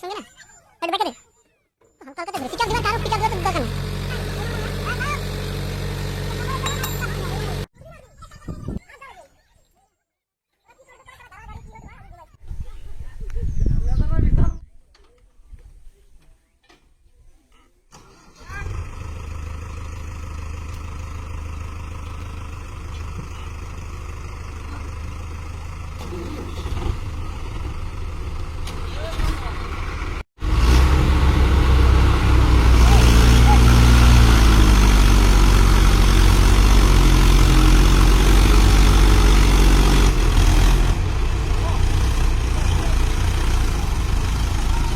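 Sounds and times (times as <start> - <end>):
tractor engine humming: 2.4 - 7.7, 17.9 - 44.9.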